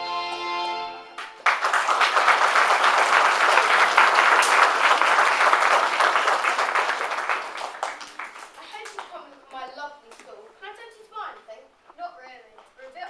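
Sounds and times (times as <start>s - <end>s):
audience applauding: 1.2s - 9.2s.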